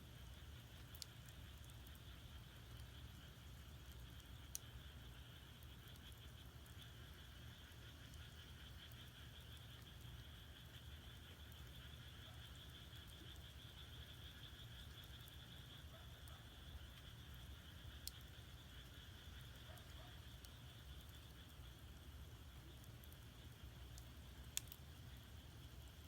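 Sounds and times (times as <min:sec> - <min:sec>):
frogs trilling: 0:00.0 - 0:26.0
firewood crackling: 0:20.4 - 0:26.0.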